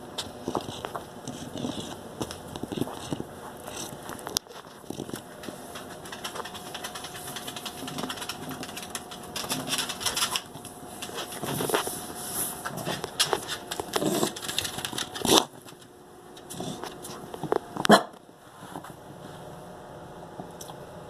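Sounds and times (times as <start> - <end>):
dog coughing: 17.8 - 18.2.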